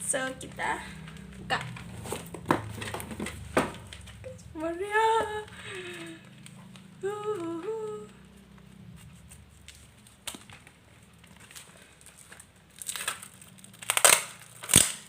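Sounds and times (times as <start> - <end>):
packaging rustling: 0.2 - 15.0
woman humming: 4.2 - 6.4, 7.0 - 8.4.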